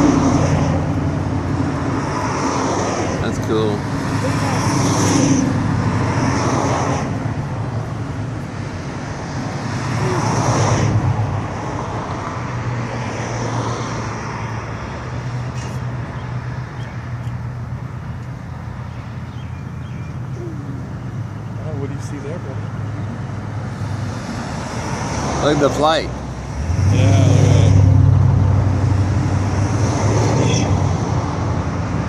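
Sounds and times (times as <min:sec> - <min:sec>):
cars driving past: 0:00.0 - 0:32.0.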